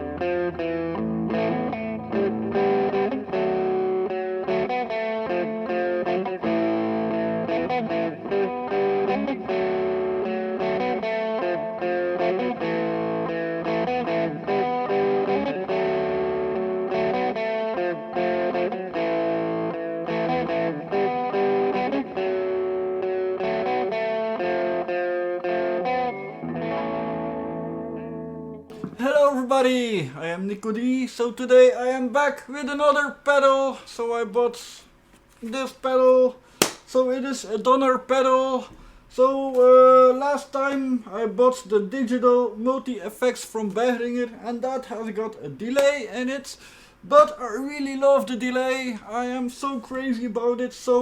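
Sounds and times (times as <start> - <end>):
electric guitar with delay: 0.0 - 28.9.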